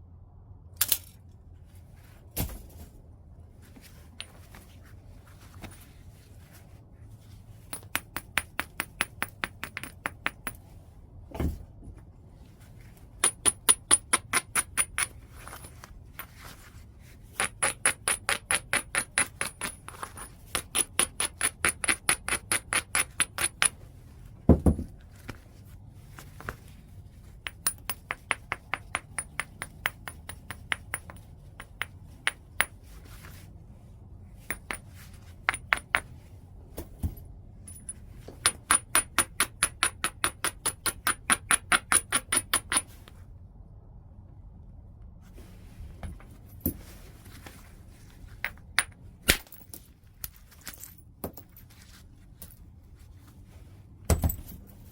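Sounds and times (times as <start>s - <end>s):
knapping tool tapping stone: 7.7s - 10.6s, 17.4s - 23.8s, 38.4s - 42.9s
heavy knocks on stone: 24.5s - 24.9s.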